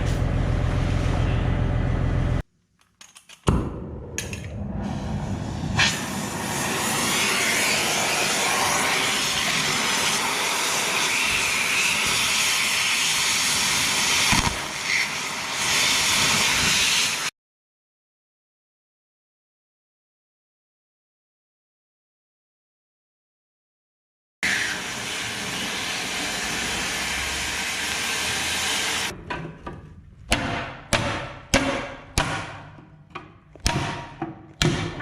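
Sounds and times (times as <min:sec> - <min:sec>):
low machine hum: 0:00.0 - 0:02.4
cutting torch hissing: 0:04.8 - 0:17.3, 0:24.4 - 0:29.1.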